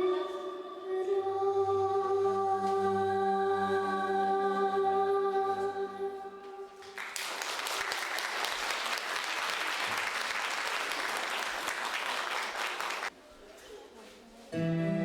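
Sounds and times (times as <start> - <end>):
audience applause: 6.8 - 13.1.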